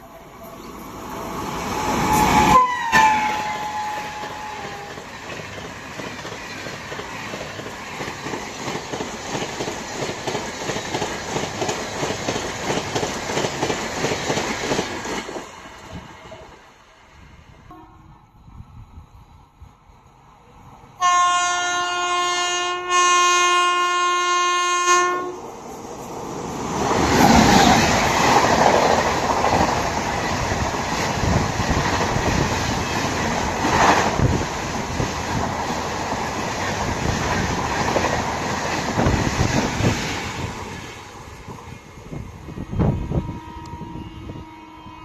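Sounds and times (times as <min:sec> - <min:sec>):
train passing at speed: 0:00.0 - 0:45.0
train horn blasts: 0:01.8 - 0:05.0, 0:17.7 - 0:18.4, 0:21.0 - 0:25.4, 0:42.8 - 0:45.0.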